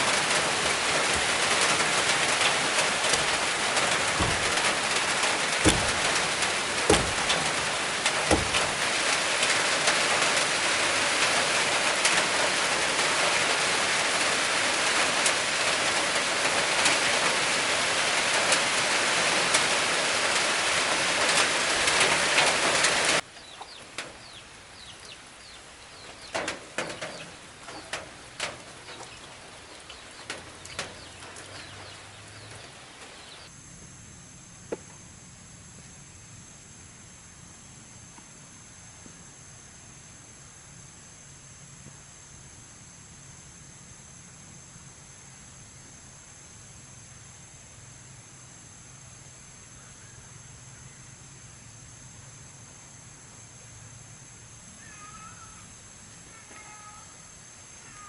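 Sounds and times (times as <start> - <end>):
heavy rain pouring: 0.0 - 33.5.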